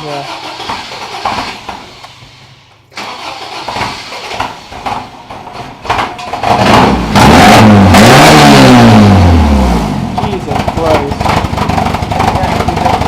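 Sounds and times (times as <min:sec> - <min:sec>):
pickup truck engine revving: 0:06.3 - 0:13.0.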